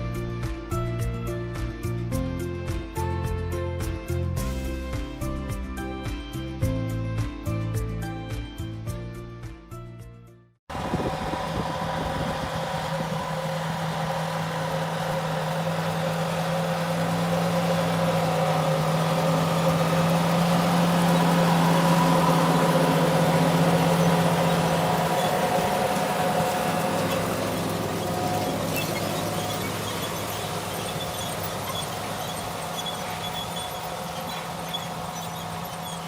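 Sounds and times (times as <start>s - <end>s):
tractor engine running: 10.7s - 36.0s.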